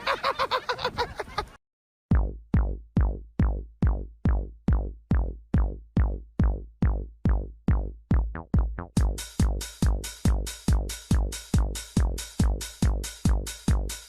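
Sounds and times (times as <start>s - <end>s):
deep kick drum: 2.1s - 14.0s
electronic dance music: 9.0s - 14.0s.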